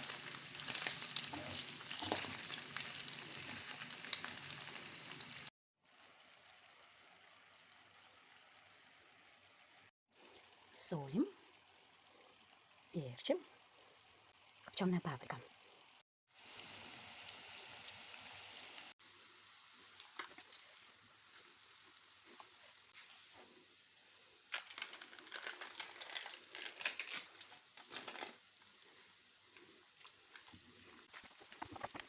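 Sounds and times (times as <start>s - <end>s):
crackly crunching and rustling: 24.4s - 32.0s.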